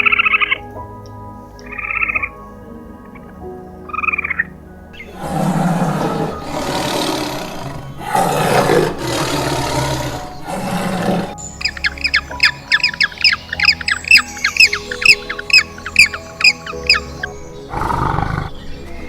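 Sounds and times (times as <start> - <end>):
background music: 0.0 - 19.0
large animal roaring: 5.0 - 11.4, 17.7 - 18.6
shrill falling calls: 5.0 - 19.0.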